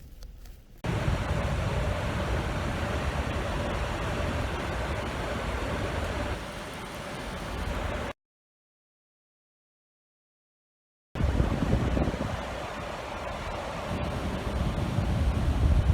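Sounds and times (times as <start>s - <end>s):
faint motor hum: 0.0s - 8.1s.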